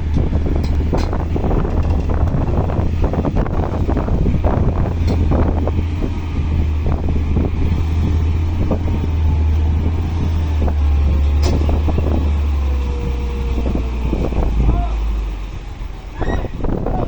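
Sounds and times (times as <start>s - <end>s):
knocks and clunks of loading soil: 0.0s - 3.9s, 8.8s - 14.6s
diesel machinery humming: 0.0s - 17.0s.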